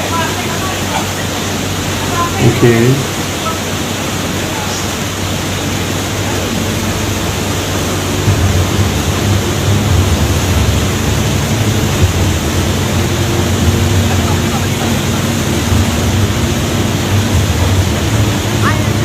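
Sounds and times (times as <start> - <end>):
waterfall roaring: 0.0 - 19.0
low rumble: 5.5 - 19.0.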